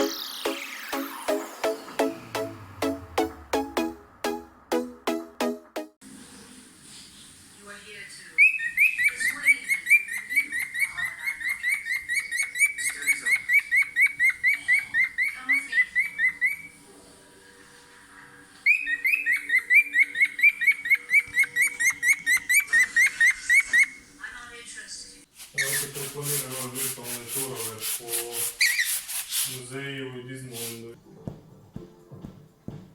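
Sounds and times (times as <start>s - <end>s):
cockatiel chirping whistled notes: 8.4s - 16.8s, 18.6s - 24.0s.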